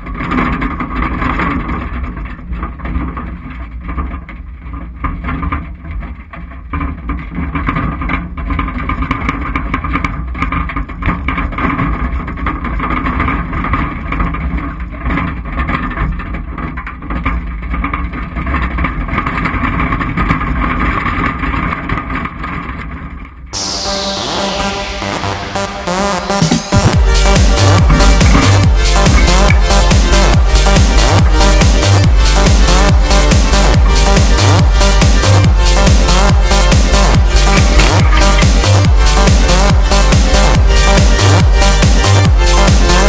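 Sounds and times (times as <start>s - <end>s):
vehicle engine rumble: 23.6s - 43.0s.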